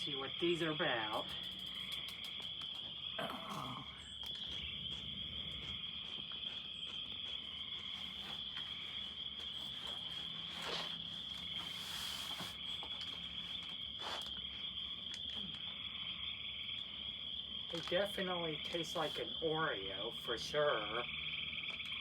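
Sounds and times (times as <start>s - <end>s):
faint clicks: 1.1s - 3.0s.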